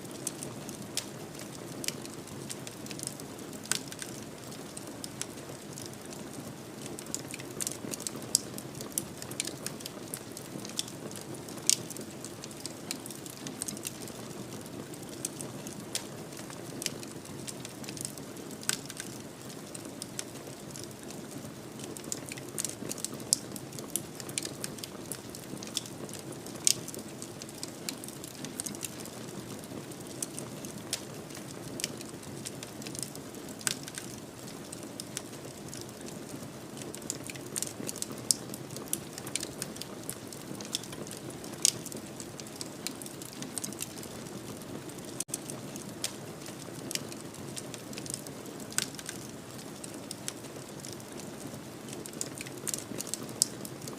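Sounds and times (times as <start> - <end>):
fire crackles and pops: 0.0 - 53.9.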